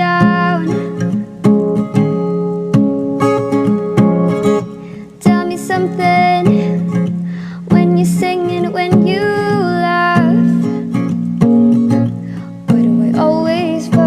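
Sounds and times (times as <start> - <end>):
person singing: 0.0 - 1.1, 5.1 - 10.7, 12.5 - 14.0
acoustic guitar strumming: 0.0 - 14.0.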